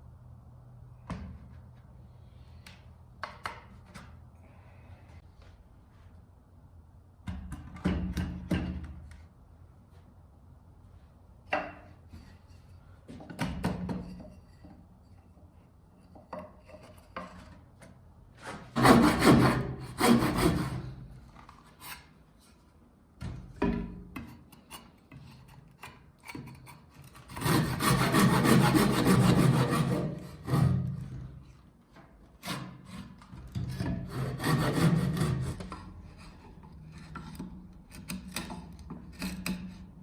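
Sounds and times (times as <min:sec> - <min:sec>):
rasping strokes on wood: 0:18.8 - 0:20.9, 0:27.3 - 0:31.0, 0:34.1 - 0:36.4.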